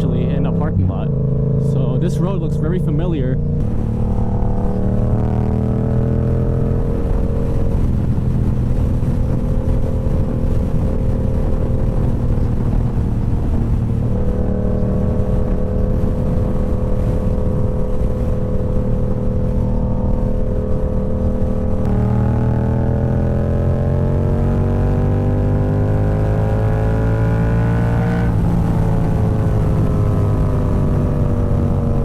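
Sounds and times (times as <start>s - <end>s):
constant rushing noise: 0.0s - 23.9s
motorcycle engine running: 0.0s - 32.0s.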